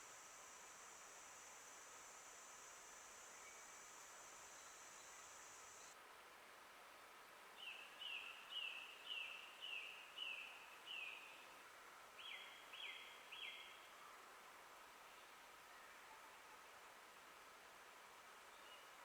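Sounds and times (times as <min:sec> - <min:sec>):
songbird singing faintly: 0:00.0 - 0:06.0, 0:07.6 - 0:11.6, 0:12.2 - 0:14.2, 0:18.4 - 0:19.0
faint hiss: 0:00.0 - 0:19.0.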